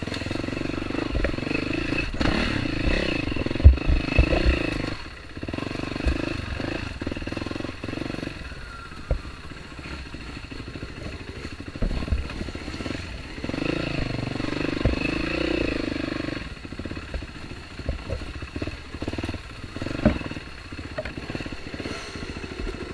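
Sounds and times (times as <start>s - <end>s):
dirt bike engine revving: 0.0s - 22.9s
sharp knocks: 3.6s - 4.8s.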